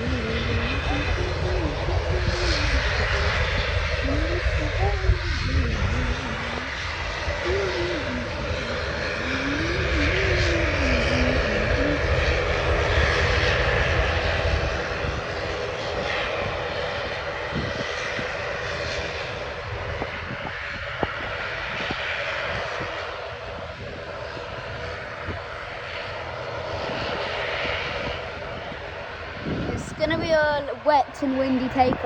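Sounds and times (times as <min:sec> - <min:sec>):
airliner engines roaring: 0:00.0 - 0:32.0.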